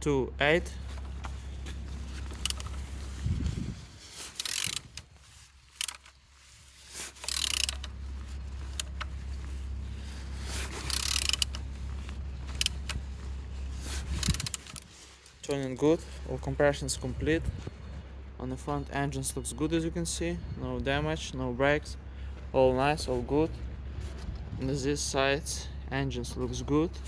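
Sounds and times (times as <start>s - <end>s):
steady low hum: 0.0s - 27.0s
engine turned over by hand: 0.8s - 15.6s.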